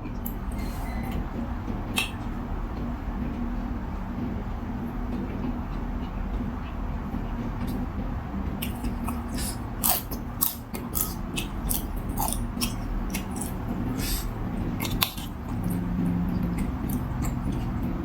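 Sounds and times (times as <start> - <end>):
steady low hum: 0.0 - 18.0
mouth clicks and smacks: 1.9 - 2.3, 5.7 - 18.0
person chewing and eating: 5.1 - 18.0.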